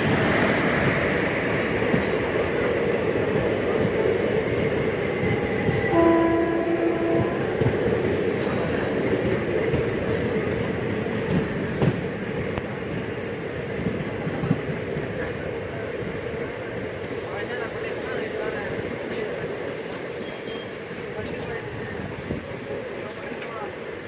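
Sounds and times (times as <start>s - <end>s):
train carriages rumbling: 0.0s - 24.0s
train horn blast: 5.9s - 7.7s.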